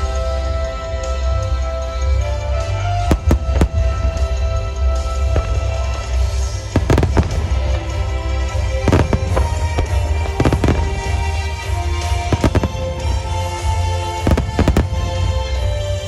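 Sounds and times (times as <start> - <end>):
music playing: 0.0 - 16.0
firework shells bursting: 3.1 - 4.3, 5.2 - 15.7
deep rumble: 3.1 - 15.5.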